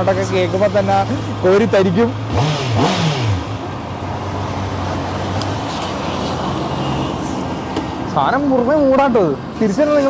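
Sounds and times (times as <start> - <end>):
traffic noise: 0.0 - 10.0.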